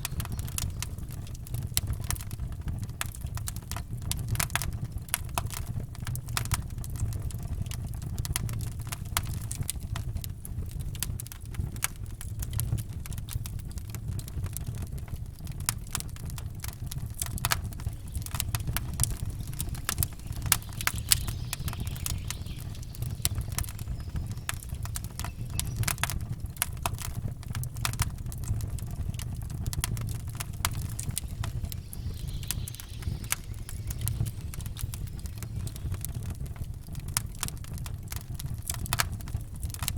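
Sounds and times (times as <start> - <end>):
campfire crackling: 0.0 - 39.9
low rumble: 16.9 - 27.1, 28.2 - 37.2.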